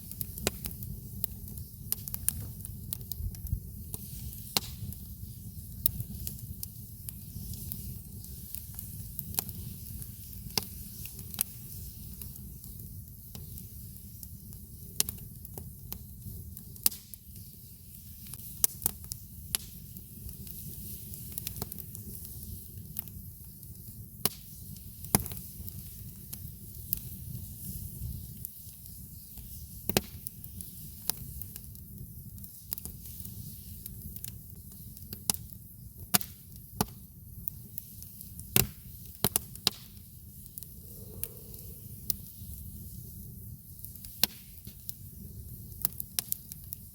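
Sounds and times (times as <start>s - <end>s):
campfire crackling and popping: 0.0s - 46.9s
steady low rumble: 40.5s - 43.2s.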